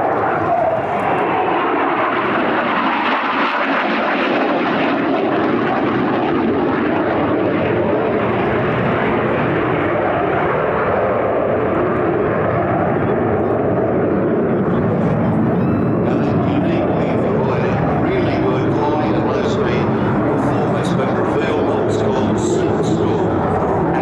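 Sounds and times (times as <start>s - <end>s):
aircraft engine roar: 0.0s - 24.0s.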